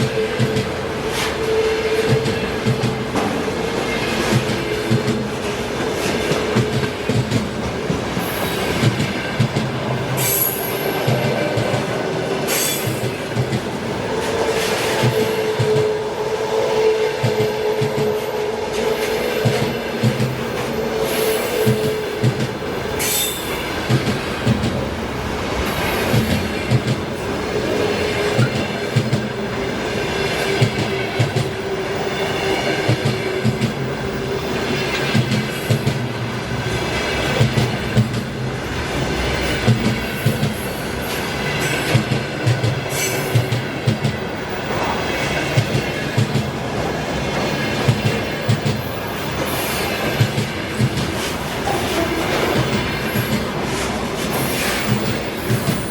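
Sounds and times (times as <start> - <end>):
wheels squealing on rails: 0.0 - 7.1, 10.0 - 24.5, 38.7 - 55.9
train wheels knocking over rail joints: 2.0 - 16.0, 21.6 - 25.0, 25.7 - 32.1, 37.1 - 38.4, 39.4 - 40.7, 47.3 - 55.9.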